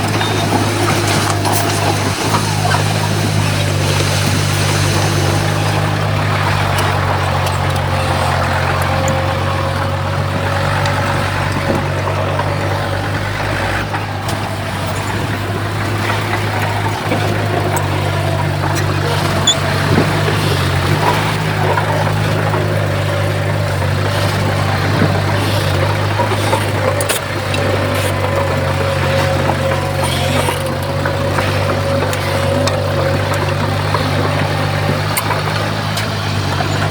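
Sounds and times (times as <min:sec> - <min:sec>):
diesel machinery engine drone: 0:00.0 - 0:36.9.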